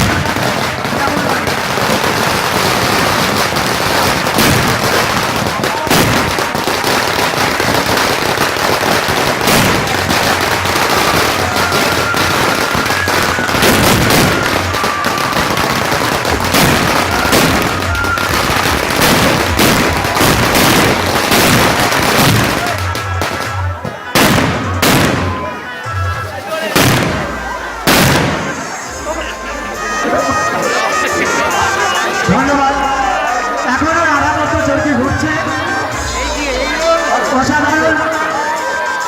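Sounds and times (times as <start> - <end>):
loud firecracker bang: 0.0 - 28.8
firecrackers crackling: 0.0 - 39.0.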